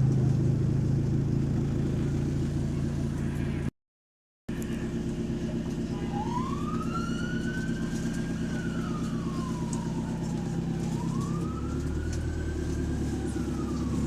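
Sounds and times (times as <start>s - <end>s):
diesel bus engine running: 0.0s - 3.7s, 4.5s - 14.0s
turbocharger whine: 4.5s - 14.0s.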